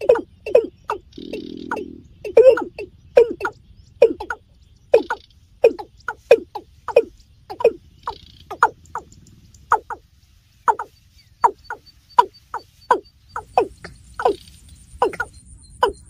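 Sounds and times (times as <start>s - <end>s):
bird calling short falling notes: 0.0s - 9.1s.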